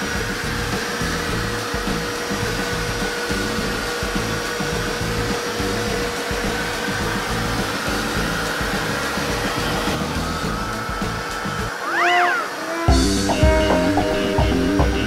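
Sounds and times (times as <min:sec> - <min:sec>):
vacuum cleaner running: 0:00.0 - 0:15.0
background music: 0:12.9 - 0:15.0.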